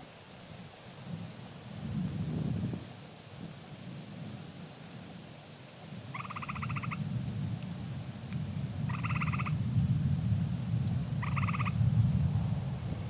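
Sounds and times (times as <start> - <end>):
treefrog trills: 6.1 - 7.0, 8.8 - 9.6, 11.2 - 11.8
distant thunder rumble: 8.4 - 13.0.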